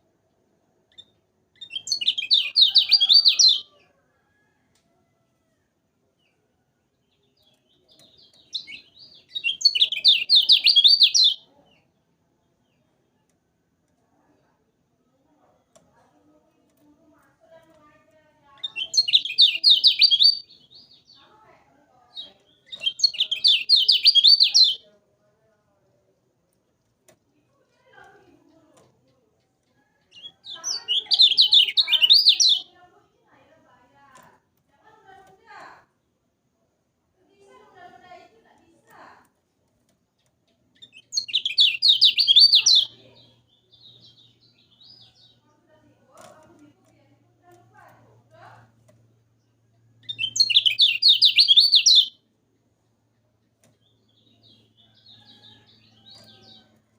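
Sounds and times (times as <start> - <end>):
songbird chirping: 0.0 - 56.9
soft bird twittering: 0.9 - 3.8, 7.2 - 11.4, 18.6 - 21.2, 22.2 - 24.8, 29.8 - 32.6, 40.6 - 45.5, 50.0 - 52.2
bird singing rapid high notes: 7.9 - 11.4, 18.6 - 21.1, 22.6 - 24.8, 30.4 - 32.6, 40.8 - 43.0, 50.0 - 52.2.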